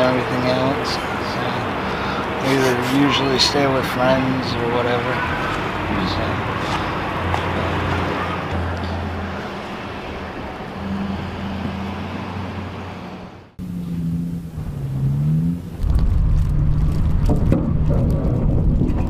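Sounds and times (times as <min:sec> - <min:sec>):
vehicle engine humming: 0:00.0 - 0:19.0
loud low rumble: 0:14.4 - 0:19.0
wind buffeting microphone: 0:15.7 - 0:19.0.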